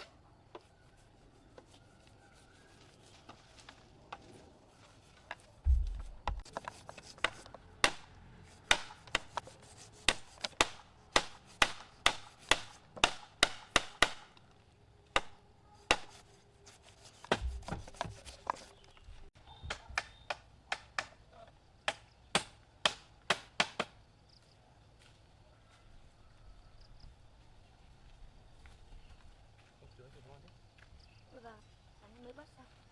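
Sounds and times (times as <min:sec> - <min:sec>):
dull low thuds: 0:05.6 - 0:06.5, 0:17.4 - 0:18.3
sharp blows on wood: 0:05.6 - 0:14.5, 0:15.1 - 0:18.9.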